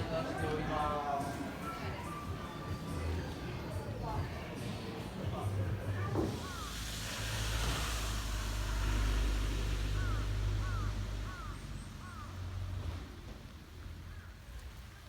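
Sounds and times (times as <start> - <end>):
short arching bird calls: 9.8 - 12.4.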